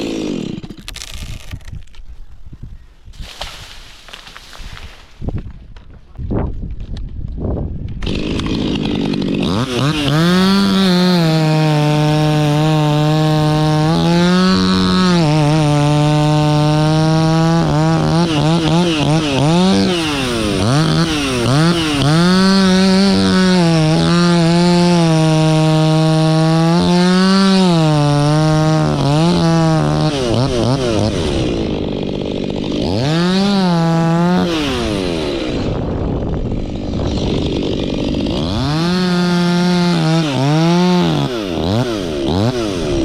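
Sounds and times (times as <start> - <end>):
chainsaw cutting wood: 0.0 - 2.1, 3.2 - 6.0, 7.8 - 43.0.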